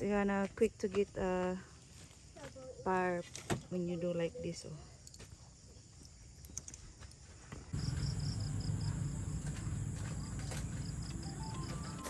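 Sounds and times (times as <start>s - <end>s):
insects chirping: 0.0s - 12.0s
low rumble: 7.8s - 11.3s.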